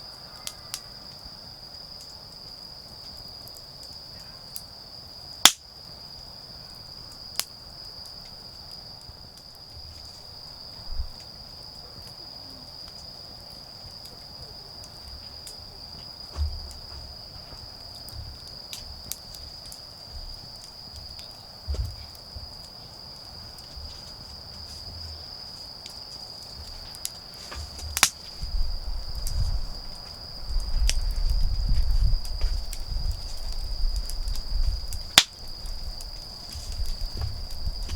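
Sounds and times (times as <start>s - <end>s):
crickets trilling: 0.0s - 37.9s
bonfire wood cracking: 0.3s - 37.9s
rustling: 23.6s - 37.9s
low thumps: 36.6s - 37.9s.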